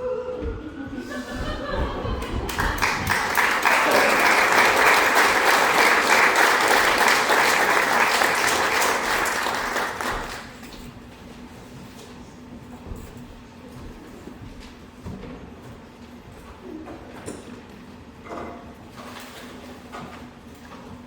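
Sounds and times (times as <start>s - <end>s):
audience applauding: 1.3s - 10.6s.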